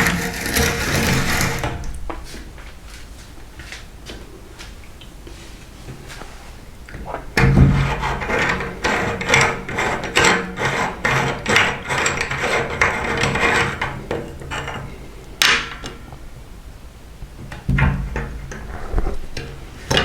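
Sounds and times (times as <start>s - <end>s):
sharp scraping noise: 0.0s - 2.5s.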